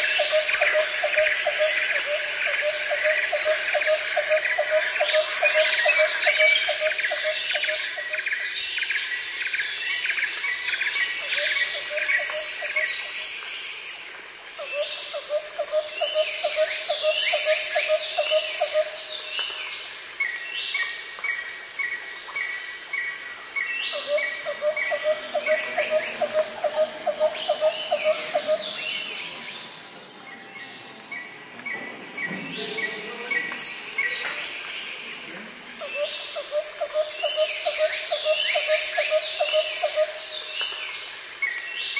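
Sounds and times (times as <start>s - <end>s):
birds chirping and calling: 0.0s - 13.3s, 23.0s - 40.8s.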